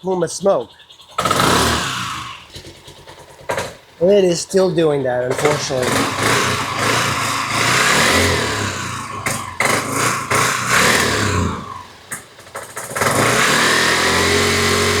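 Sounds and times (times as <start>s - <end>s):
scooter engine revving: 0.7s - 15.0s.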